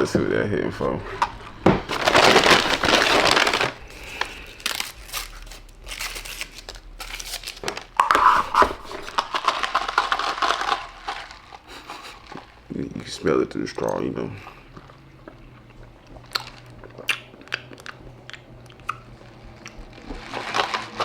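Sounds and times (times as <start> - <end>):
paper crinkling and tearing: 1.7 - 12.6, 19.8 - 21.0.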